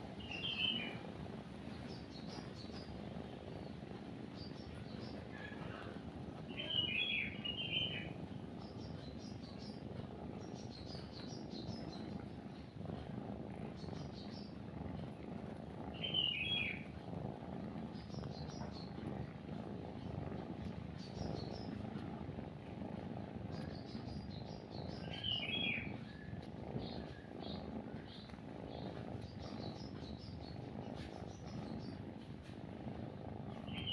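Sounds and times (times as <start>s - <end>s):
cat purring: 0.0s - 33.9s
faint high bird chirps: 0.2s - 1.0s, 6.5s - 8.1s, 16.0s - 16.8s, 23.7s - 27.2s, 33.6s - 33.9s.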